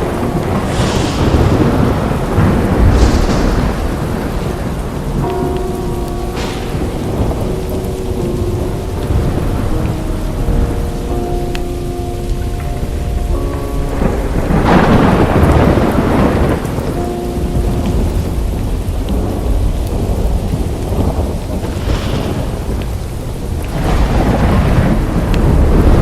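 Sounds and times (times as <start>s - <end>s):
heavy rain: 0.0s - 26.0s
thunder rolling: 0.0s - 26.0s
soft held synth notes: 3.8s - 21.3s.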